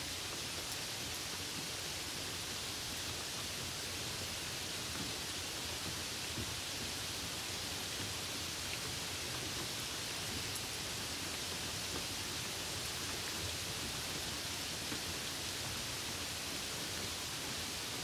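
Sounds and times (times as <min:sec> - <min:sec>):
rain falling on puddle: 0:00.0 - 0:18.0.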